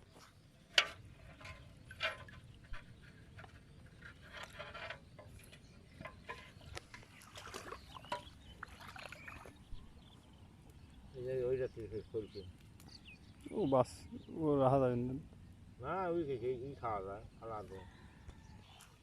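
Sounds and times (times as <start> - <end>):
fishing net handling noises: 0.0 - 9.5
small water splashes: 6.1 - 10.2.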